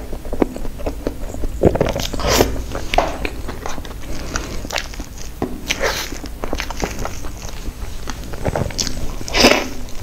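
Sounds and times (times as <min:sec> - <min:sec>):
wet chewing and lip smacks: 0:00.0 - 0:10.0.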